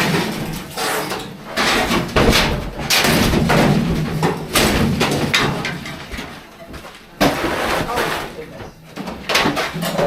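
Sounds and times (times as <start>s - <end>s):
rattling and scraping: 0.0s - 10.0s
loud knocks and thuds: 1.5s - 8.2s.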